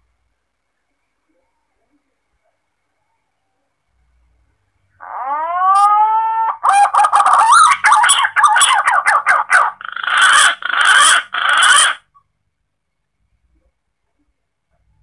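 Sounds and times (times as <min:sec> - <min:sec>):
pigeon call whistling: 0:05.7 - 0:12.0.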